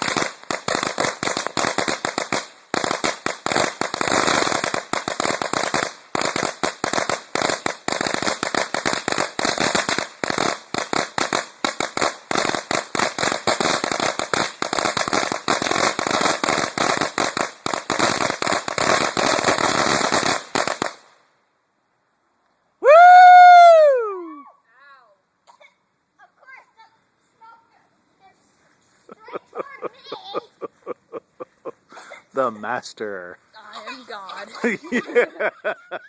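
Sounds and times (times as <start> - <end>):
firecrackers banging: 0.0 - 21.1, 29.1 - 31.8.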